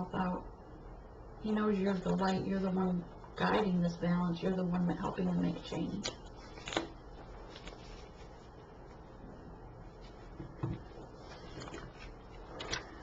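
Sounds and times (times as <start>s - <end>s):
soft knocks or rustles: 10.0s - 12.7s.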